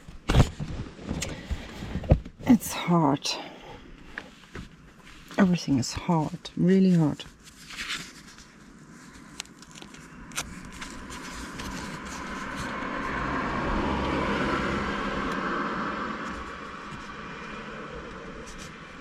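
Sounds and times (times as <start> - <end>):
car driving past: 12.0 - 19.0.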